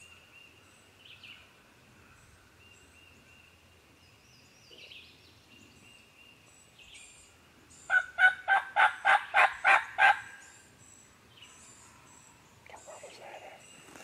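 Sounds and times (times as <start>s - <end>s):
faint bird chirps: 0.0s - 8.2s, 9.5s - 14.0s.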